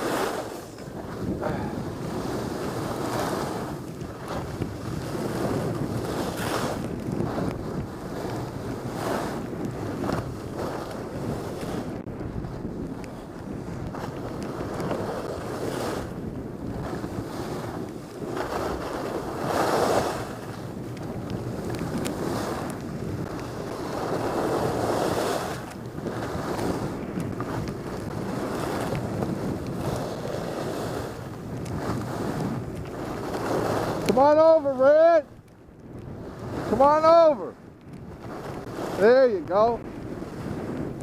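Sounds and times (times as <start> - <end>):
skis hissing on snow: 0.0 - 3.8
wind rushing over microphone: 0.0 - 41.0.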